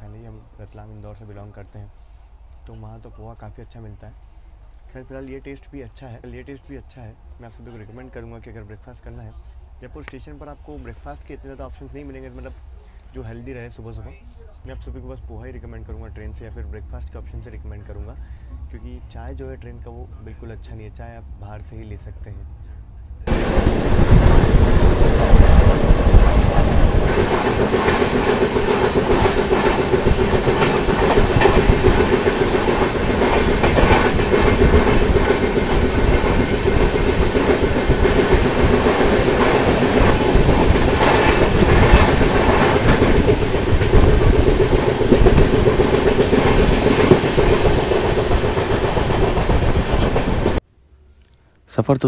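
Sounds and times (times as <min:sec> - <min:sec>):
train rumble: 0:03.8 - 0:50.6
rush of air: 0:23.3 - 0:50.6
train wheels clattering: 0:23.3 - 0:50.6.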